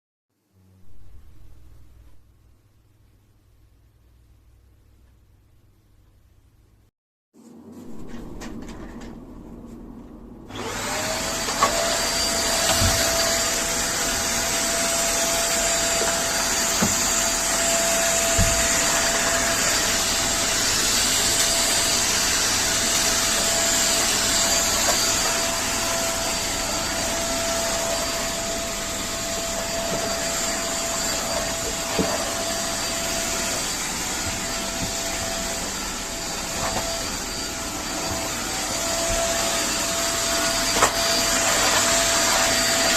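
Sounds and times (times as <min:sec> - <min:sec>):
vacuum cleaner running: 0:10.5 - 0:42.9.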